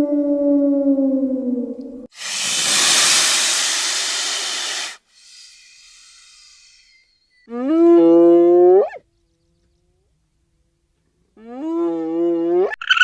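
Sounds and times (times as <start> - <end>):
animal hissing: 2.1 - 7.1.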